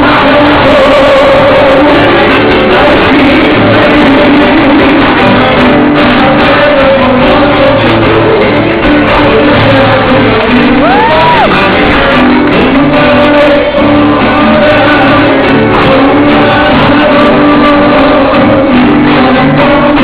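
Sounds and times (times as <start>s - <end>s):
group singing loudly: 0.0s - 20.0s
people shouting: 10.7s - 12.0s.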